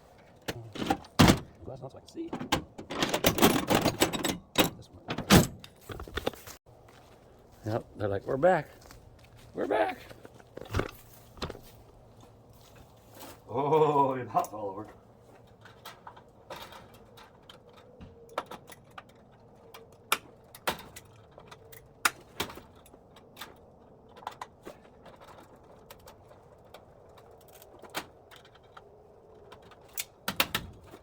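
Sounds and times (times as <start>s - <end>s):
metal hinges clicking and knocking: 2.2s - 6.4s, 15.4s - 31.0s.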